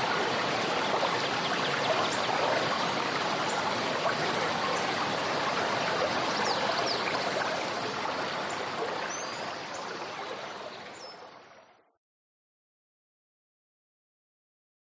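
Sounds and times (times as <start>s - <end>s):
river water rushing: 0.0s - 11.3s.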